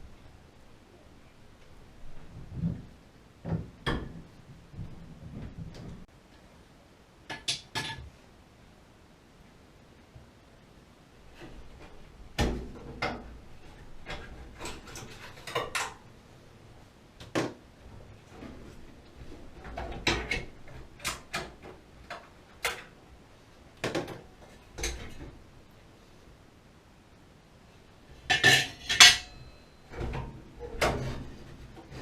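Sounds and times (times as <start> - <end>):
metal tools clinking: 28.3 - 29.7.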